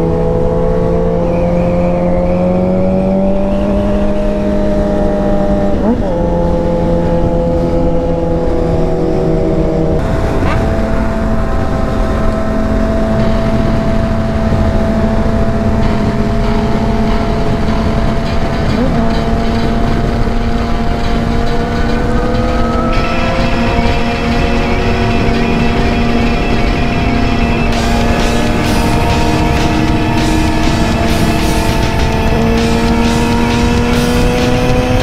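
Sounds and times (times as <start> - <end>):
motorcycle engine running: 0.0 - 35.0
wind noise: 0.0 - 35.0.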